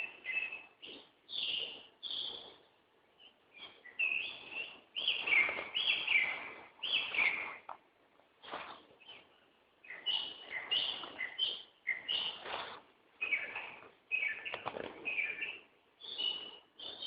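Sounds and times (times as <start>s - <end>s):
songbird warbling: 3.2s - 7.7s, 9.0s - 17.0s.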